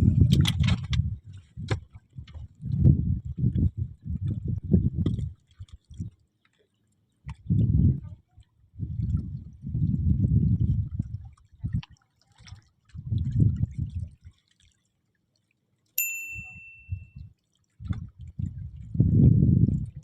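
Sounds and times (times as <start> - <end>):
metallic ding: 16.0 - 17.1.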